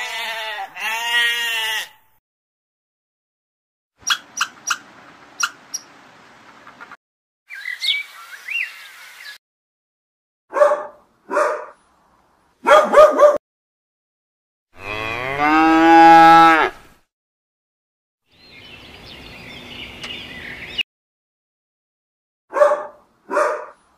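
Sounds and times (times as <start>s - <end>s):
cow mooing: 0.0s - 2.0s, 14.8s - 16.8s
faint bird twittering: 7.5s - 9.4s.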